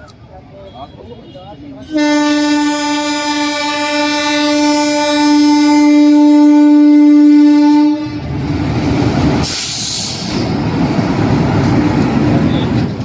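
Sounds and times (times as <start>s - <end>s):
train rumbling past: 1.7s - 13.0s
train horn: 1.8s - 8.3s
brief hiss: 9.4s - 10.5s.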